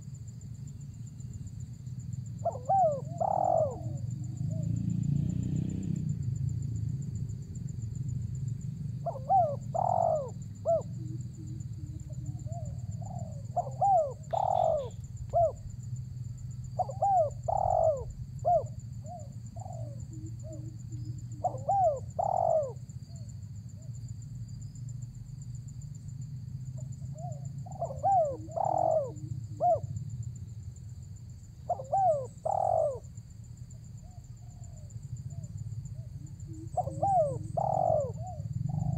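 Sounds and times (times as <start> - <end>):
dove cooing: 2.4 - 4.9, 9.0 - 15.8, 16.6 - 23.9, 26.8 - 30.0, 31.7 - 33.2, 34.0 - 38.9.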